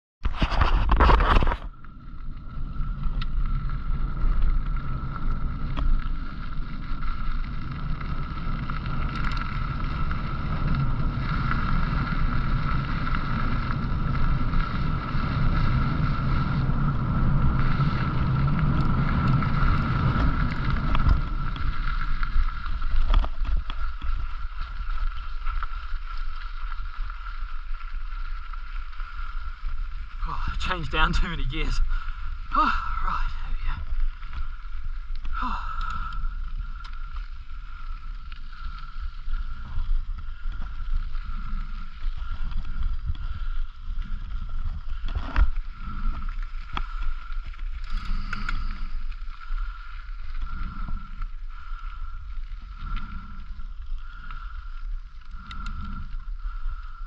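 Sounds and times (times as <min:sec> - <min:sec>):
low riding rumble: 0:01.7 - 0:57.0.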